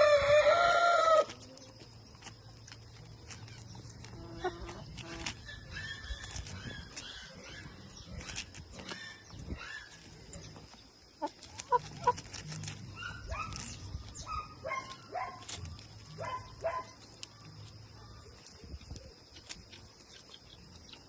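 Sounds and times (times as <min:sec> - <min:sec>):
poultry clipped calls: 0:00.0 - 0:21.0.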